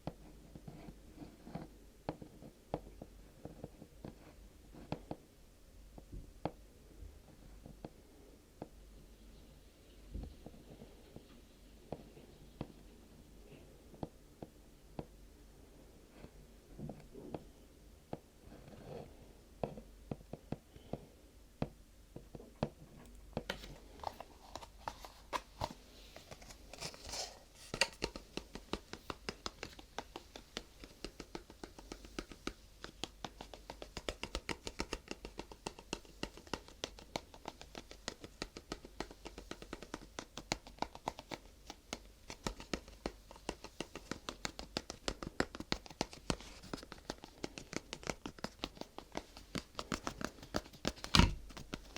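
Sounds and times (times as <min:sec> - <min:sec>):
fingertip tapping on objects: 0:19.6 - 0:51.9.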